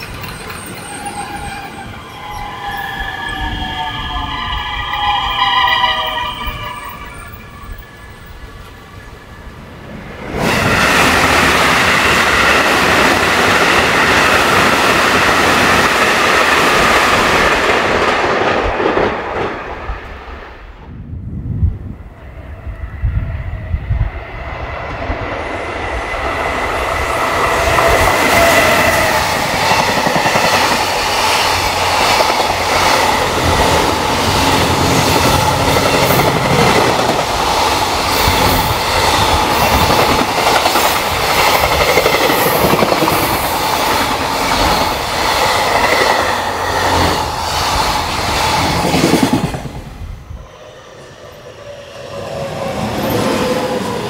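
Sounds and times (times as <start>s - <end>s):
train approaching: 0.0s - 54.0s
train passing at speed: 0.0s - 54.0s
whining tones: 0.2s - 9.5s.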